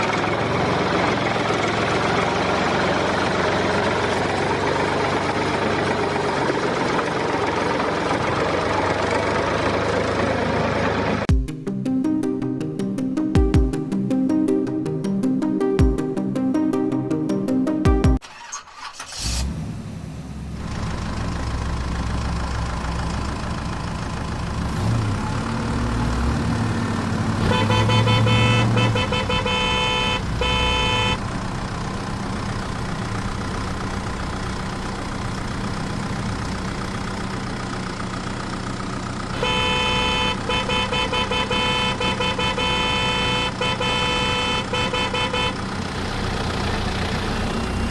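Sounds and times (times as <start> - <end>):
tractor engine running: 0.0 - 11.4, 18.2 - 47.9
tractor horn honking: 27.4 - 31.3, 39.3 - 45.8.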